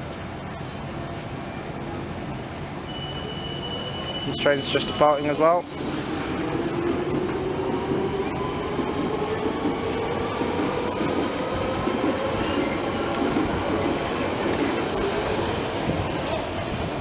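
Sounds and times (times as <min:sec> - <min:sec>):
high wheel squeal: 0:02.9 - 0:05.6
wheels rumbling on rails: 0:04.2 - 0:17.0.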